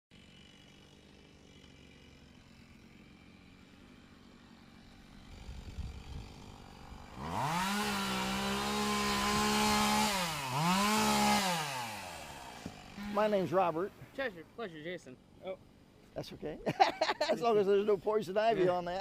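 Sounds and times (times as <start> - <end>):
chainsaw engine revving: 0.2 - 13.9.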